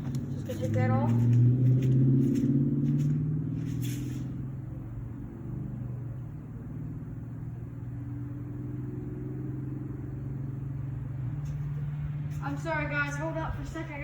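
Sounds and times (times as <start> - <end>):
vehicle engine humming: 0.0 - 14.0
brief rustle: 1.8 - 4.3.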